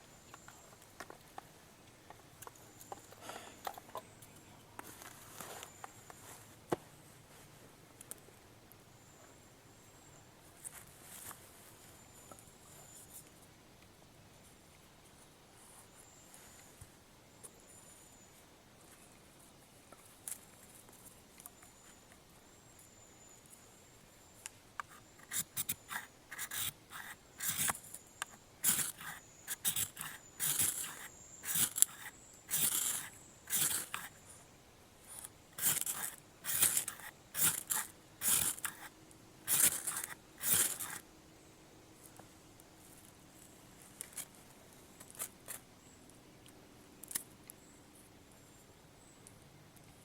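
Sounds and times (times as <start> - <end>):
knife blade scraping: 24.9 - 27.8, 28.6 - 34.2, 35.2 - 38.9, 39.5 - 41.0.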